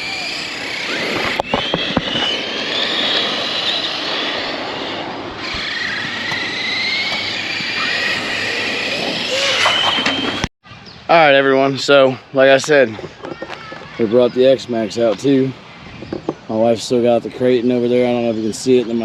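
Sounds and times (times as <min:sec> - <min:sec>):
electric motor whining: 0:00.0 - 0:10.5.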